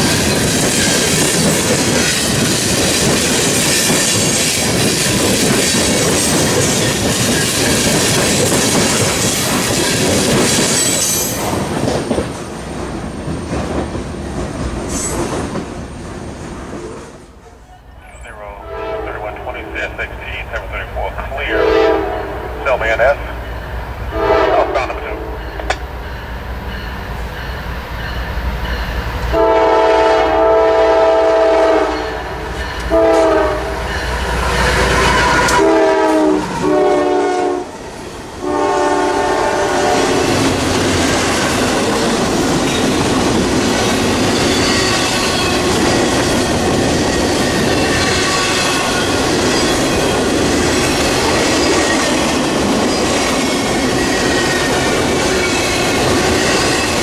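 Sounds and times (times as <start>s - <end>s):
train rumble and wheel clack: 0.0s - 57.0s
locomotive air horn blasts: 18.6s - 19.4s, 21.5s - 22.5s, 24.1s - 25.4s, 29.3s - 33.8s, 35.2s - 37.7s, 38.4s - 40.2s.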